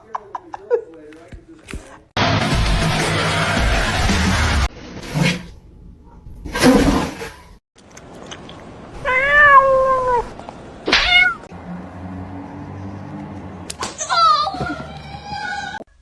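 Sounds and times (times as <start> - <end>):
cat meowing: 9.0 - 10.3, 10.9 - 11.5.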